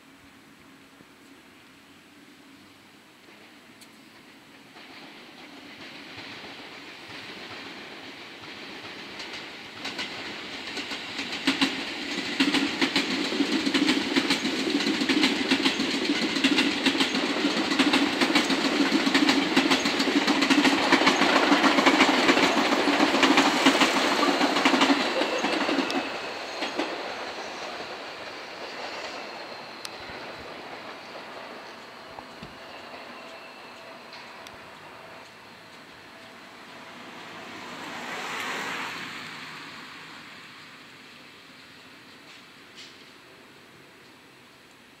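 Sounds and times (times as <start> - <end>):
train wheels clattering: 3.2 - 38.7.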